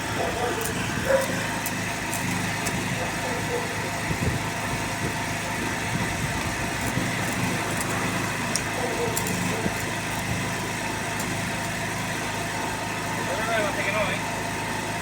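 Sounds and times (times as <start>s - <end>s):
generator engine idling: 0.0s - 15.0s.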